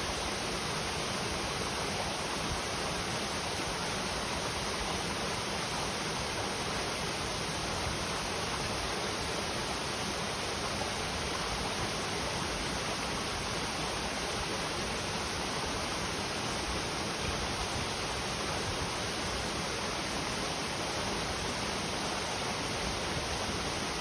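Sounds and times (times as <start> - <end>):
river water rushing and splashing: 0.0 - 24.0.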